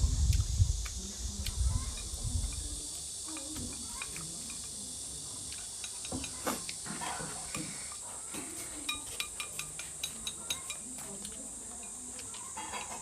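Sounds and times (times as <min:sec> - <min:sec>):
steady background hiss: 0:00.0 - 0:13.0
person chewing: 0:00.2 - 0:02.1.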